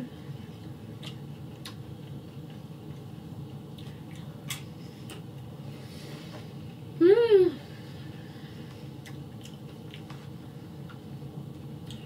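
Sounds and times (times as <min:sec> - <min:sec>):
steady low hum: 0:00.0 - 0:12.0
wet chewing: 0:00.9 - 0:05.3, 0:09.0 - 0:11.0.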